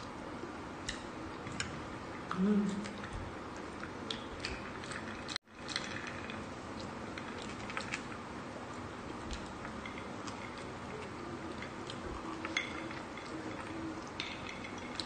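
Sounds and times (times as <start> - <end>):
chewing with mouth smacks: 0.9 - 8.2.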